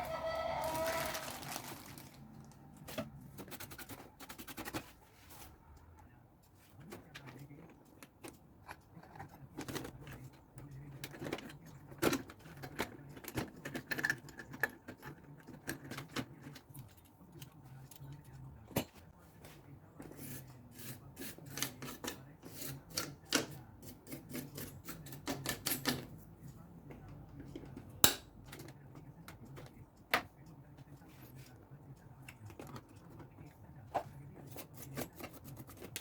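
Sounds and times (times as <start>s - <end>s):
tools clicking and tapping: 6.4s - 19.1s, 20.0s - 33.5s, 34.4s - 36.0s.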